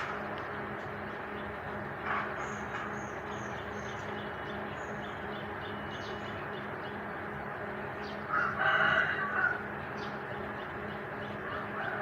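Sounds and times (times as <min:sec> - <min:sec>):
steady low hum: 0:00.0 - 0:12.0
small birds chirping: 0:00.3 - 0:12.0.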